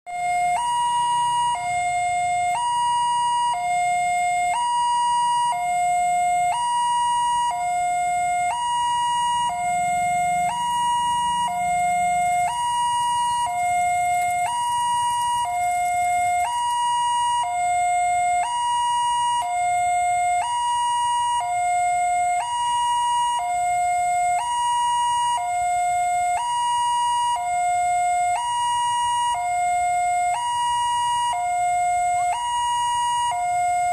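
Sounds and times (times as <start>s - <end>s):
two-tone level crossing siren: 0.1s - 33.9s.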